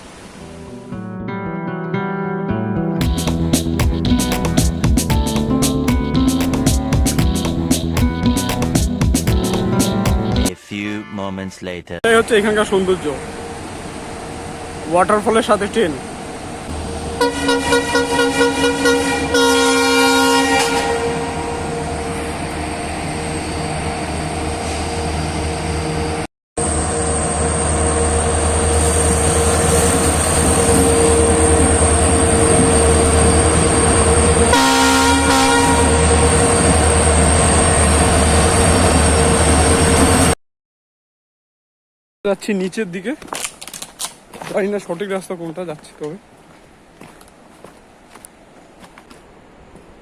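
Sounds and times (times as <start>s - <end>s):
train running rumble: 16.5s - 20.0s, 20.8s - 40.3s
train horn two-note call: 16.8s - 22.2s, 26.9s - 37.1s.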